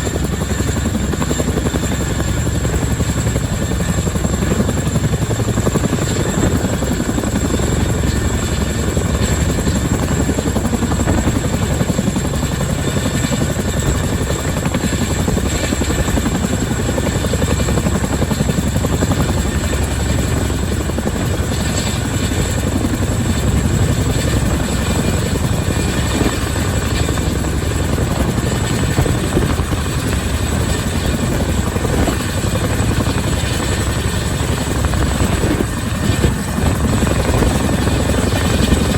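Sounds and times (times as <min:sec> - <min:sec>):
helicopter rotor chop: 0:00.0 - 0:38.9
helicopter turbine noise: 0:00.0 - 0:38.9.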